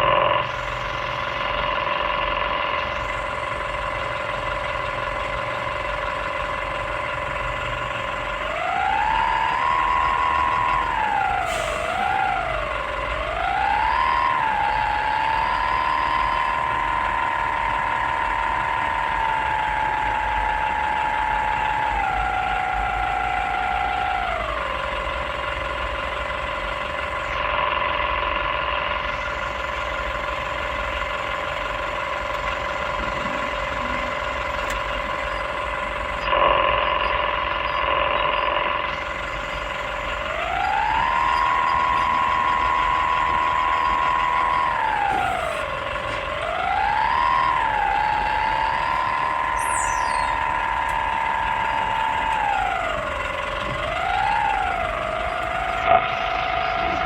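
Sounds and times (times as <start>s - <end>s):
excavator diesel engine whining: 0.0s - 57.0s.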